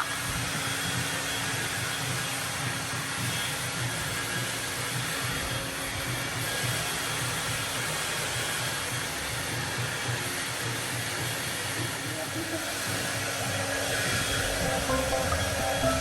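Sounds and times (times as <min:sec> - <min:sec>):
hair dryer blowing: 0:10.4 - 0:14.6.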